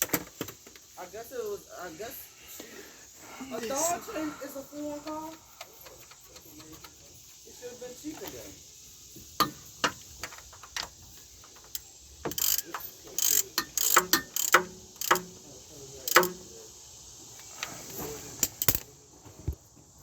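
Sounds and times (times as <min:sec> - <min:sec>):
ratchet wrench clicking: 0:04.7 - 0:07.4, 0:08.1 - 0:17.7, 0:18.3 - 0:18.9
metal tools clinking: 0:09.5 - 0:16.5, 0:17.6 - 0:18.9.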